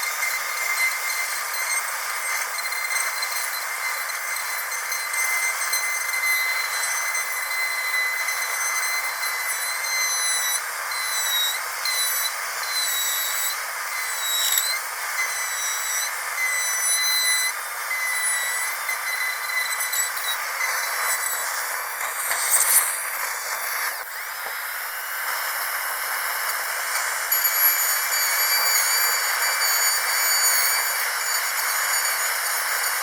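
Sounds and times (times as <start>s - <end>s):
dentist's drill whining: 0.0s - 33.0s
air hissing: 10.6s - 28.5s.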